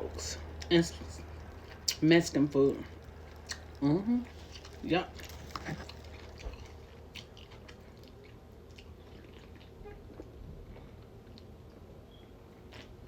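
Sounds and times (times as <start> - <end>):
person chewing food: 0.4 - 2.1, 2.8 - 13.0.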